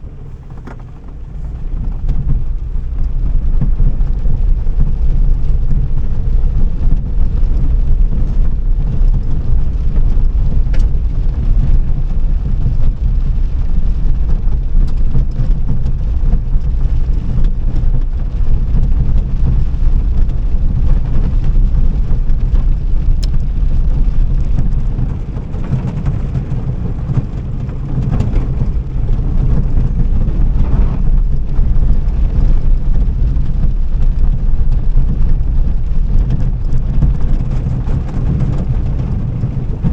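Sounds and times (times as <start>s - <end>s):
car engine rumble: 0.0s - 39.9s
road noise: 22.5s - 34.3s.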